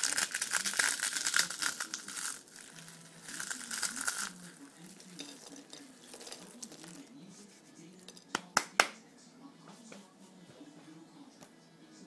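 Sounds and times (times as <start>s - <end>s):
chip bag rustling and crackling: 0.0s - 7.1s.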